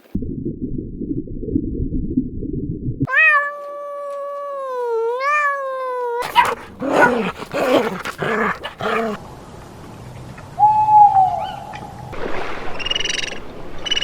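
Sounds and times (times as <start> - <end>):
cat meowing: 3.1 - 9.2
low rough animal sound: 6.2 - 9.2.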